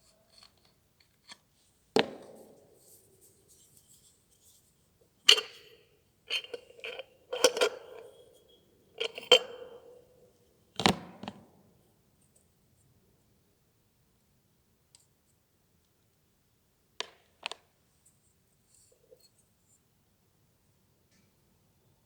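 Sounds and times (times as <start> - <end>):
metal parts knocking and clanking: 6.3 - 8.1.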